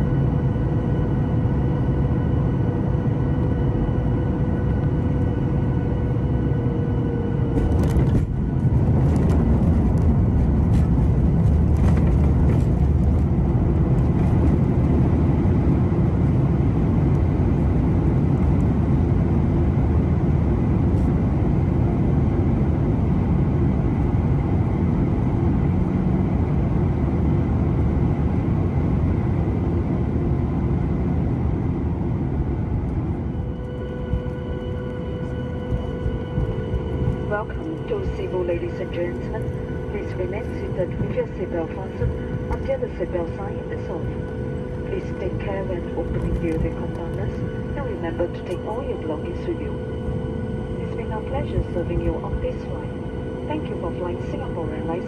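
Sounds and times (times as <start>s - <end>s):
airliner cabin engine rumble: 0.0s - 55.0s
high engine whine: 0.0s - 55.0s
touchdown thumps and rattles: 7.5s - 15.1s.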